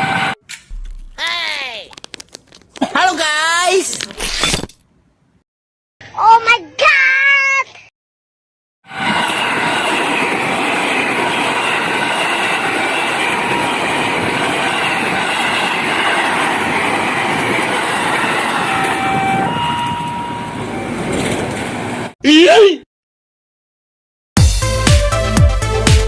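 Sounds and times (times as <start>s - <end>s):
train wheels on rails: 8.9s - 22.1s.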